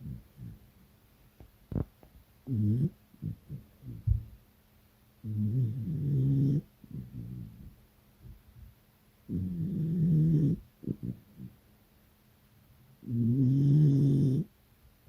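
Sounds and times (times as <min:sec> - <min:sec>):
dog snoring: 0:00.0 - 0:00.6, 0:02.4 - 0:04.2, 0:05.2 - 0:07.8, 0:09.3 - 0:11.6, 0:13.0 - 0:14.5.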